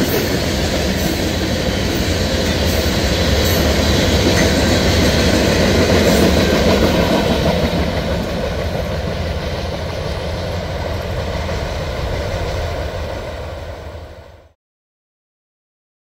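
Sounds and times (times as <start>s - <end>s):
train wheels rumbling and rattling: 0.0s - 14.4s.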